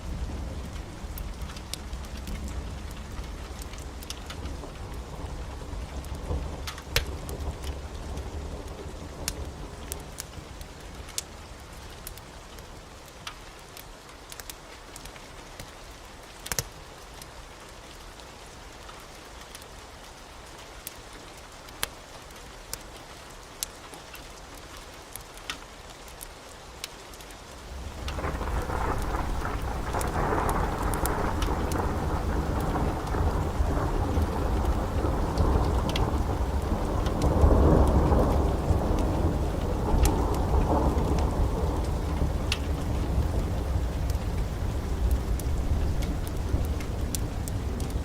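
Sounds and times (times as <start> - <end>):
steady rain: 0.0 - 48.0
wood fire crackling: 0.0 - 48.0
thunder rumbling: 27.6 - 48.0.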